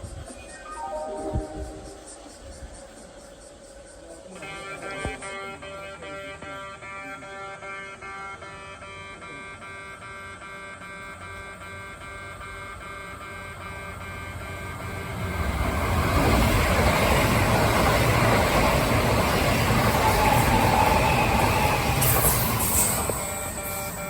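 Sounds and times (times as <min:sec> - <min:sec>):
train wheels rushing on rail: 0:09.8 - 0:24.0
level crossing bell beeping: 0:21.4 - 0:24.0.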